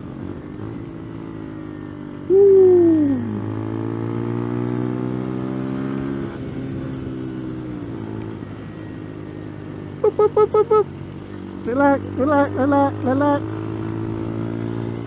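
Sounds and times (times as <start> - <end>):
motorbike engine running: 0.0 - 15.0
person calling out: 2.3 - 3.5, 10.0 - 10.9, 11.7 - 13.5.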